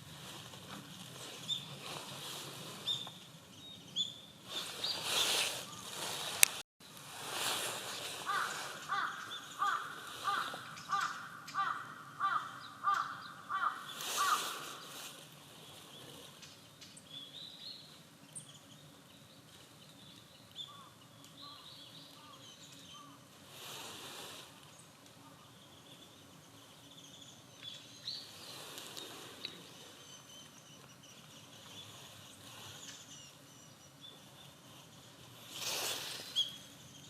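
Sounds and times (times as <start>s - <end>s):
crow cawing: 8.2s - 14.8s
high thin bird chirps: 27.2s - 37.0s.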